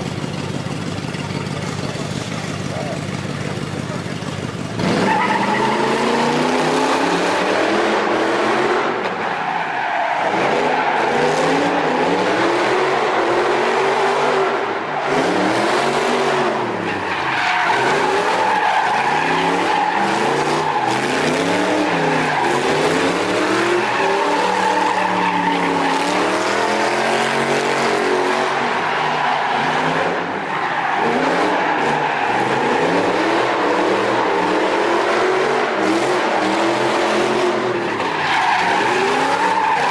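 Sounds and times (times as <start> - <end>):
car engine revving: 0.0 - 39.9
tyre squeal: 5.0 - 6.3.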